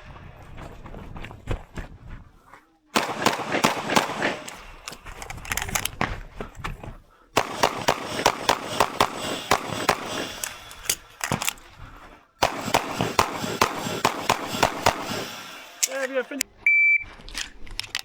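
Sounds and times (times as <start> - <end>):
pistol shots: 3.0 - 5.2, 7.4 - 11.5, 12.4 - 16.2.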